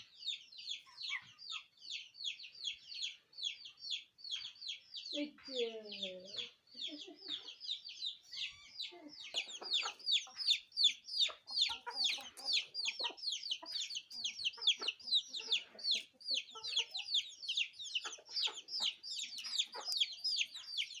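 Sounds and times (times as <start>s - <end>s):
birds chirping: 0.0s - 21.0s
low clucking sounds: 9.0s - 21.0s.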